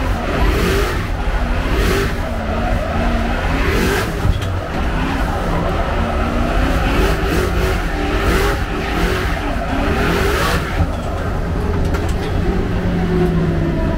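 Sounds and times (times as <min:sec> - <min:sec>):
engine revving hard: 0:00.0 - 0:04.2, 0:04.8 - 0:10.8.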